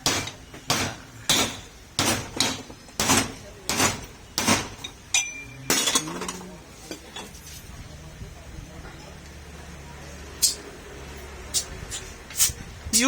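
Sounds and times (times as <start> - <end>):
hammer striking metal: 0.0 - 6.1.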